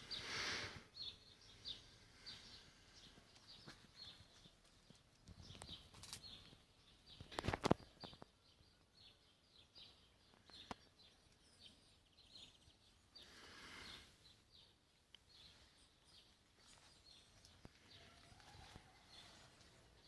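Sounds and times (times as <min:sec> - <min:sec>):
small birds chirping: 0:00.0 - 0:20.0
brief rustle: 0:07.2 - 0:08.2.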